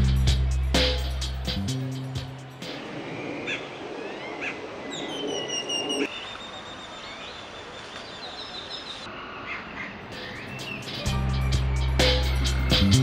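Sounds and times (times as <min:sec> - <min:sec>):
outdoor background noise: 0:02.3 - 0:13.0
birds chirping and whistling: 0:02.7 - 0:09.1, 0:10.1 - 0:13.0.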